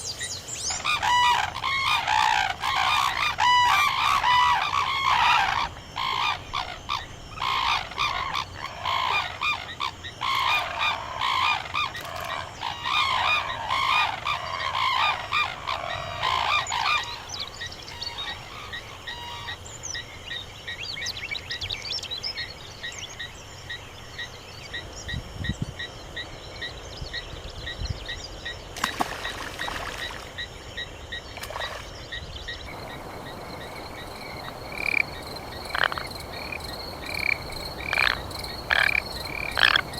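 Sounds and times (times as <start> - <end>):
frogs croaking: 0.0 - 27.3, 28.1 - 39.9
honking bird calls: 0.7 - 17.3, 32.7 - 39.9.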